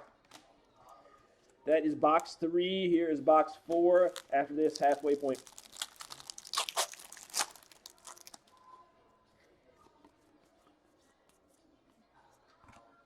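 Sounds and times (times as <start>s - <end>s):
packaging tearing and crinkling: 4.1s - 8.5s.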